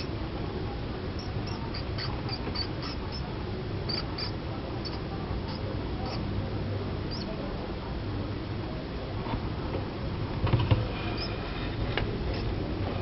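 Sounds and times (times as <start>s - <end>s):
steady low hum: 0.0s - 13.0s
mouse squeaking: 1.1s - 3.3s, 3.9s - 6.3s, 7.1s - 7.3s, 11.1s - 11.4s, 12.3s - 12.5s.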